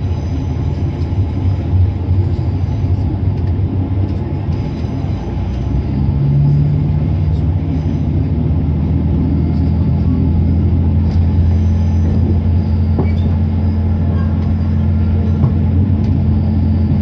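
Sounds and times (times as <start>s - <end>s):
train diesel engine drone: 0.0s - 17.0s
train wheels on rails: 11.0s - 17.0s.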